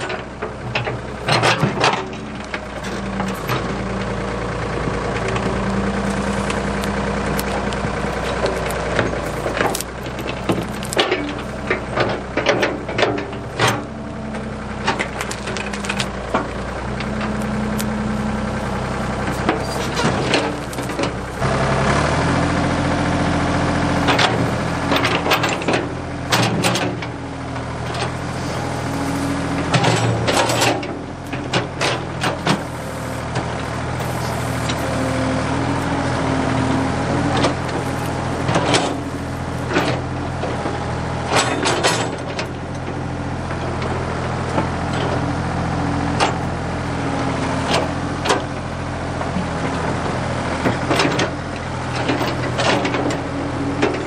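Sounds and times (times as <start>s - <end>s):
backhoe engine running: 0.0s - 54.0s
sharp cracks and knocks: 6.2s - 13.8s, 14.8s - 17.9s.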